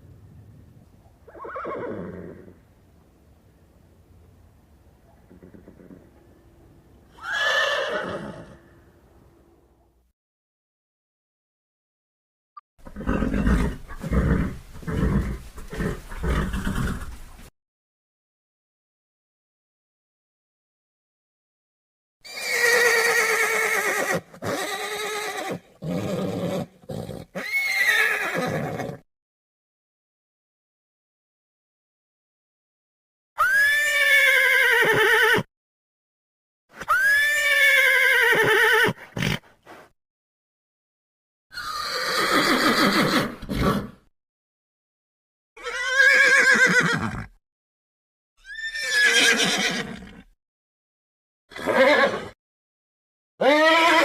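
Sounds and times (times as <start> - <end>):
horse whinnying: 1.3 - 2.6, 7.1 - 8.6, 12.8 - 17.1, 22.2 - 29.0, 33.4 - 35.5, 36.8 - 39.5, 41.5 - 44.1, 45.6 - 47.4, 48.4 - 50.4, 51.5 - 52.4, 53.4 - 54.0
horse breathing: 12.8 - 17.5, 39.0 - 39.9.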